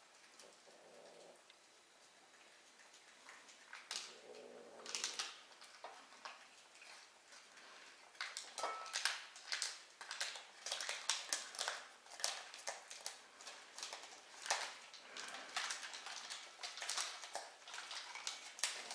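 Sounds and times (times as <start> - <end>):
kitten chewing and smacking: 4.8 - 18.9.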